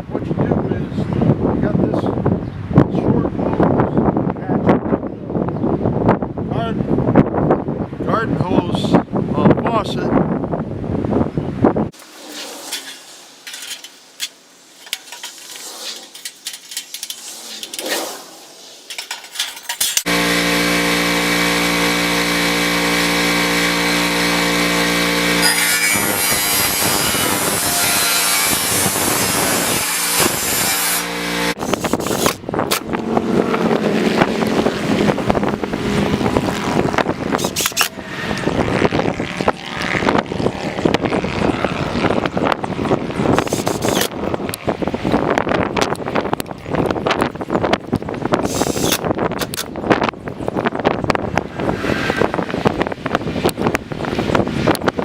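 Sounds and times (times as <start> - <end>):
high-pressure water spray hissing: 12.0 - 19.0, 48.4 - 49.0
handling noises: 12.0 - 20.1
small gas engine running: 20.0 - 44.1.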